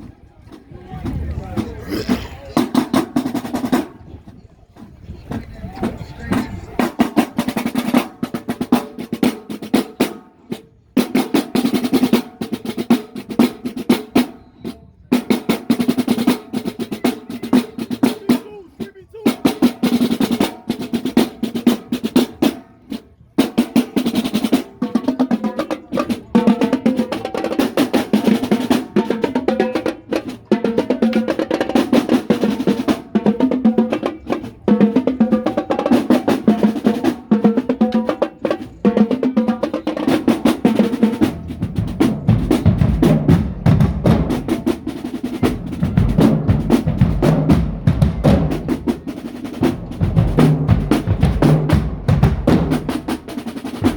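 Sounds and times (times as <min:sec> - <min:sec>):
snare drumline cadence: 0:15.1 - 0:53.9.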